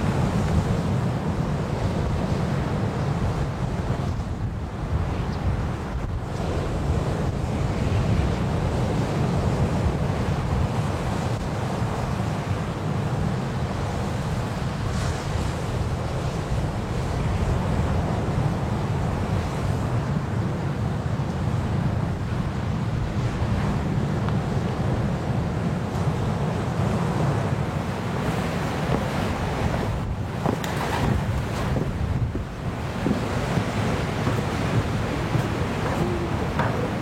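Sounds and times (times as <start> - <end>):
wind: 0.0 - 37.0
surf rushing: 26.3 - 37.0.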